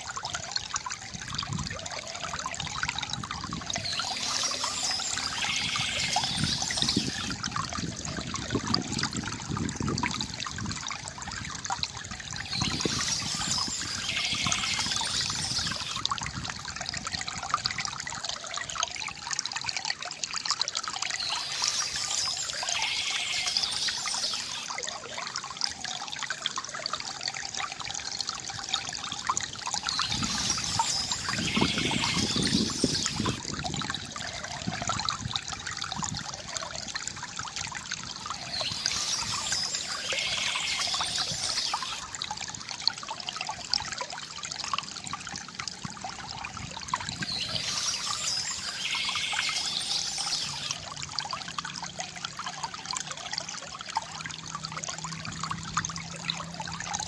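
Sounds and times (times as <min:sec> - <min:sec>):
water trickling from fountain: 0:00.0 - 0:57.0
high bird chirping: 0:03.8 - 0:07.4, 0:12.4 - 0:16.0, 0:21.2 - 0:24.7, 0:29.8 - 0:33.4, 0:38.4 - 0:42.0, 0:47.1 - 0:50.8.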